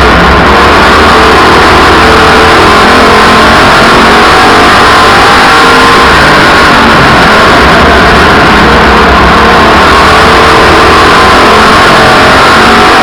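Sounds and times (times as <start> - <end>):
race car engines running hard: 0.0 - 13.0.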